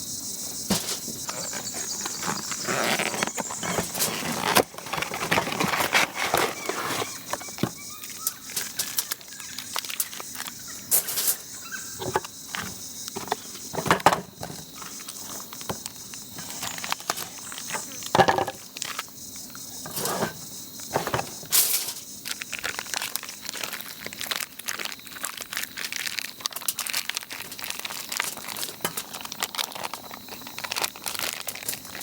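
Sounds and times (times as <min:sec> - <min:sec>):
insects chorus: 0:00.0 - 0:32.0
handling rustles and clicks: 0:00.7 - 0:19.1, 0:26.4 - 0:32.0.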